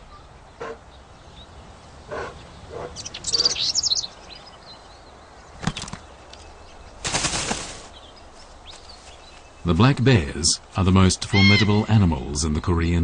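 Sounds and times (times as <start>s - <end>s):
small songbirds chirping: 0.0s - 13.0s
wings flapping: 7.0s - 8.0s.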